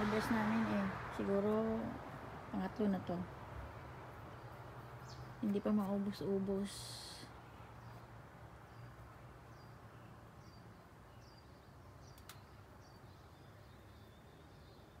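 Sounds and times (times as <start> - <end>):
small bird chirping: 4.3 - 15.0
click: 12.1 - 12.4.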